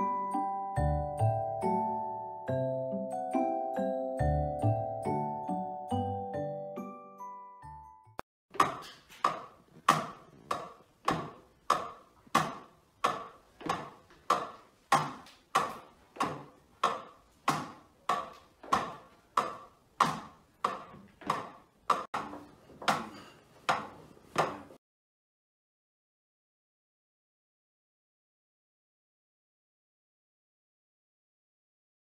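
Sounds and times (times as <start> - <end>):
drumsticks tapping rubber pads: 8.5 - 24.8.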